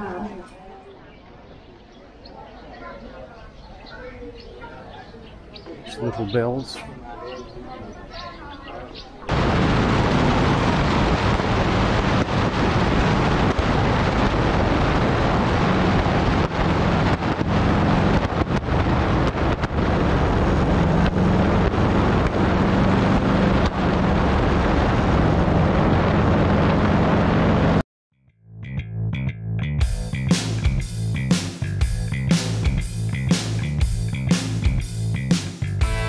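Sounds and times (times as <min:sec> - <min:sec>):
motorcycle engine: 0:09.3 - 0:27.8
wind rushing over microphone: 0:09.3 - 0:27.8.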